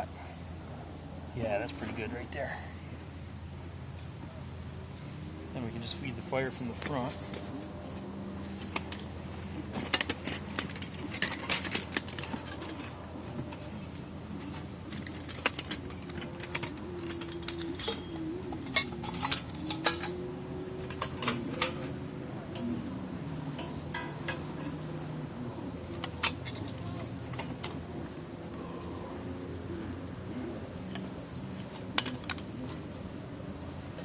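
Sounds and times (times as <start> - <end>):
metal skewers clinking: 6.6 - 28.2, 30.5 - 33.0.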